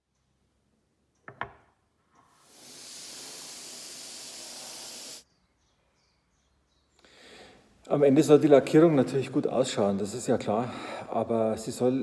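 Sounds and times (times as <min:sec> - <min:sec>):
paint spray gun hissing: 0:02.4 - 0:05.2.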